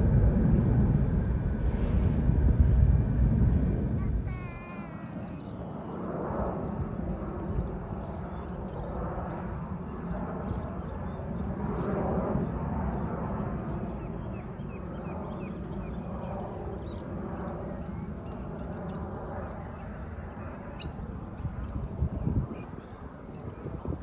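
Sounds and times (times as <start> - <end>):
wind buffeting microphone: 0.0 - 5.3, 19.4 - 24.0
jet airliner rumble: 0.0 - 24.0
small birds chirping: 3.9 - 5.7.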